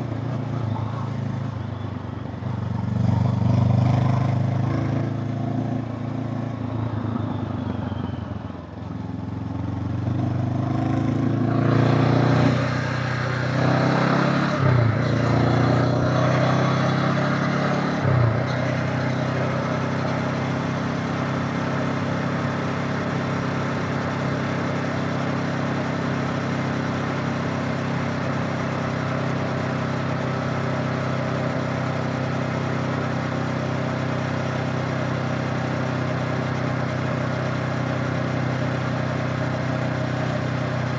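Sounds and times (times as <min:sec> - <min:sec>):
motorcycle engine revving: 0:09.6 - 0:40.9.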